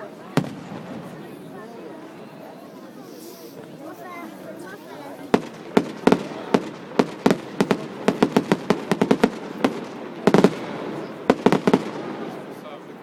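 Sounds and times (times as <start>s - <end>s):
fireworks bangs: 0.3s - 1.6s, 5.2s - 12.7s.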